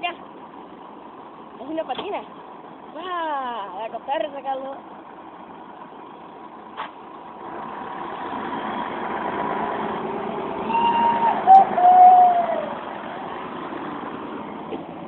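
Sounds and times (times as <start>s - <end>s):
heavy vehicle engine under load: 0.0s - 15.0s
high wavering tone: 10.6s - 12.8s.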